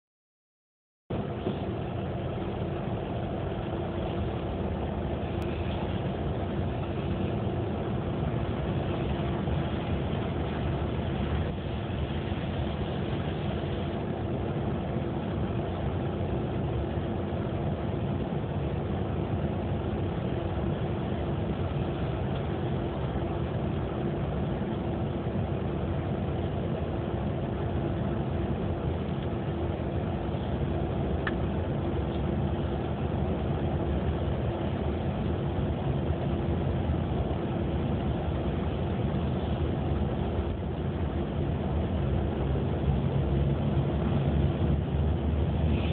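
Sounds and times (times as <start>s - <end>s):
car engine running: 1.1s - 45.9s.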